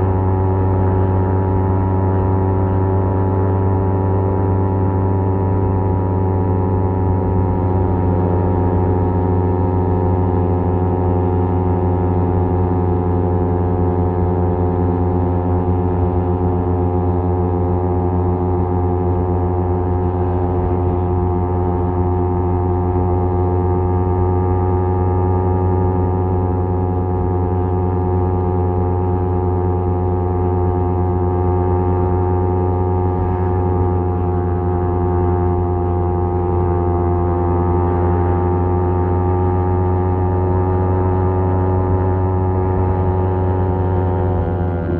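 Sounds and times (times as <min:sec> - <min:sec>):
motorcycle engine cruising: 0:01.0 - 0:13.8, 0:15.5 - 0:24.0, 0:32.6 - 0:36.8, 0:41.9 - 0:44.9.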